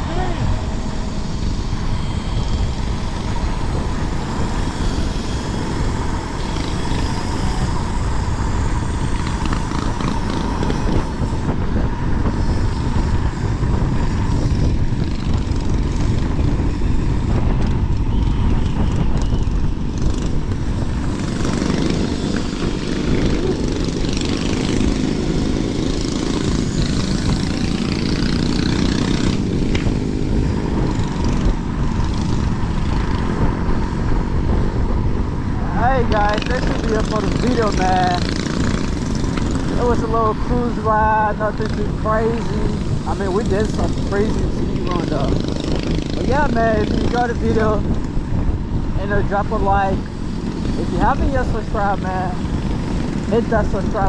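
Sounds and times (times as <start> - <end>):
faint steady whine: 0.0 - 34.2
road noise: 0.0 - 54.0
wind buffeting microphone: 0.0 - 54.0.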